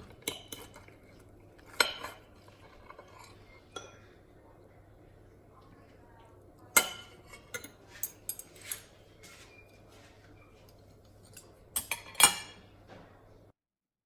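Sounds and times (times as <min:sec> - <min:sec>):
utensils clinking against dishes: 0:00.0 - 0:04.1, 0:06.6 - 0:12.7.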